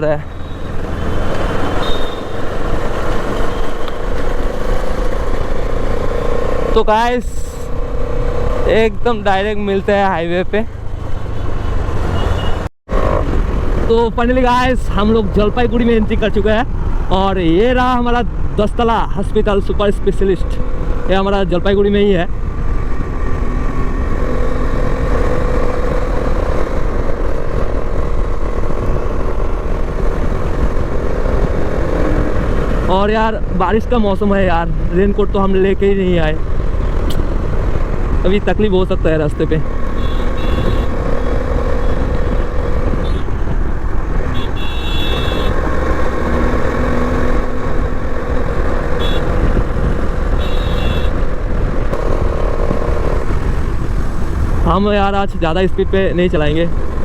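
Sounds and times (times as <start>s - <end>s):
motorcycle engine rumble: 20.2s - 57.0s
motorcycle engine running: 39.8s - 54.7s.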